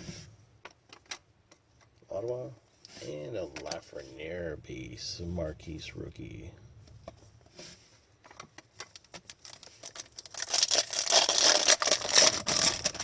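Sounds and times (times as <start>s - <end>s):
foil wrapper crinkling and tearing: 8.8s - 13.0s.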